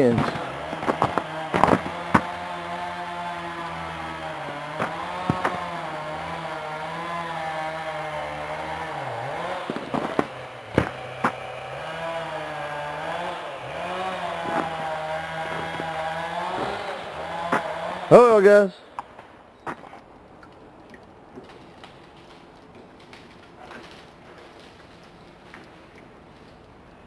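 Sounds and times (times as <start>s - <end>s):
sharp cracks of tree limbs: 0.0s - 18.2s, 18.9s - 27.0s
chainsaw cutting at high revs: 0.0s - 18.6s.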